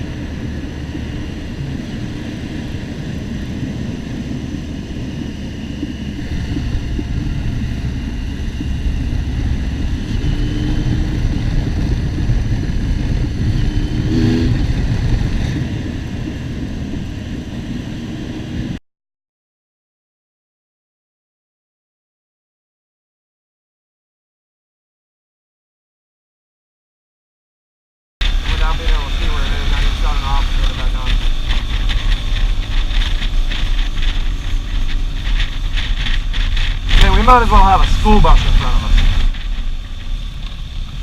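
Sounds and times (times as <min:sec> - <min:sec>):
motorcycle engine: 0:00.0 - 0:18.8, 0:28.2 - 0:41.0
wind noise: 0:00.0 - 0:18.8, 0:28.2 - 0:41.0.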